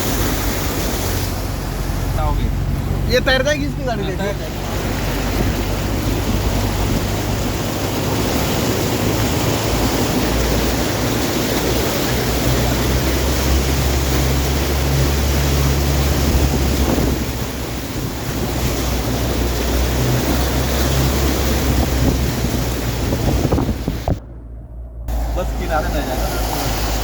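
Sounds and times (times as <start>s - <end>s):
floodwater rushing: 0.0s - 27.0s
wind buffeting microphone: 0.0s - 27.0s.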